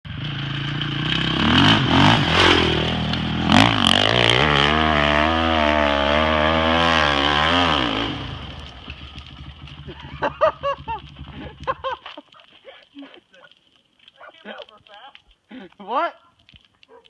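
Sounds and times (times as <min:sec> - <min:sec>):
dirt bike engine revving: 0:00.1 - 0:12.0.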